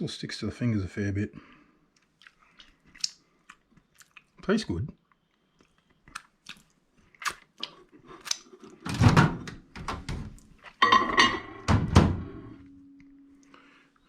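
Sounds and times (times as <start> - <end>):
microwave door shutting: 11.6 - 12.5.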